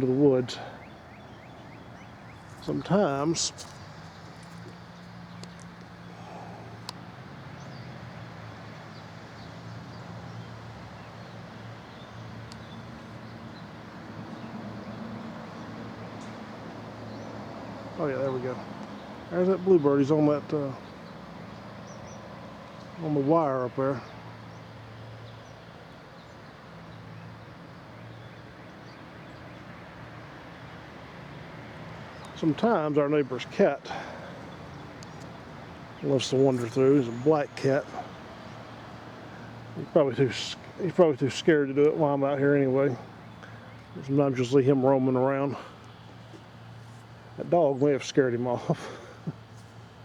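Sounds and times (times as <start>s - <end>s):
faint bird chirps: 0.5s - 6.9s.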